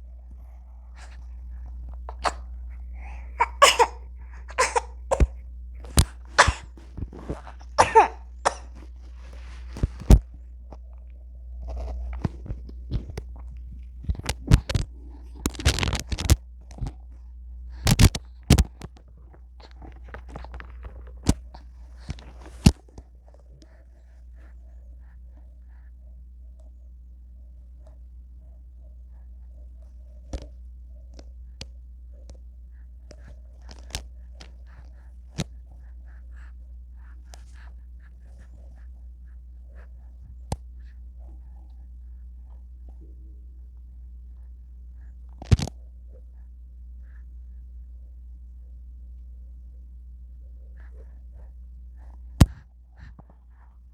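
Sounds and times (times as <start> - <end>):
low steady hum: 0.0 - 53.9
baby coughing: 2.1 - 5.4, 6.3 - 6.8, 7.4 - 8.8
baby vocal sounds: 2.1 - 5.4, 6.4 - 6.8, 7.6 - 8.7.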